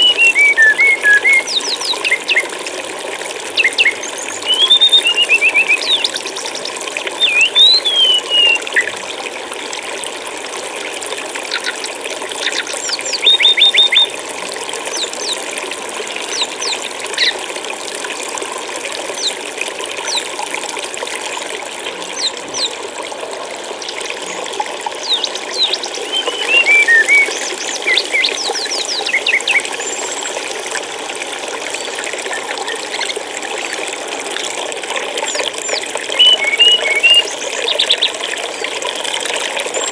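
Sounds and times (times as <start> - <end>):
songbird chirping and whistling: 0.0 - 2.4, 3.6 - 6.2, 7.2 - 8.9, 12.4 - 14.1, 25.0 - 29.7, 36.2 - 38.1
flowing water rushing: 0.0 - 39.9.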